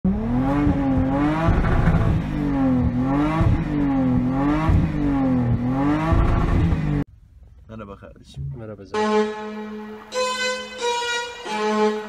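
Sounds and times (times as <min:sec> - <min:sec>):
engine revving up and down: 0:00.0 - 0:07.0.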